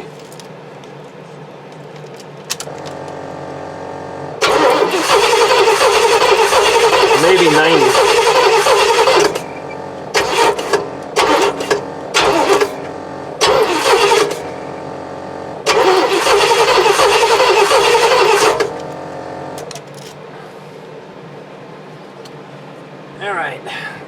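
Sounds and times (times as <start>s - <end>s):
starter cranking engine: 4.3s - 20.1s.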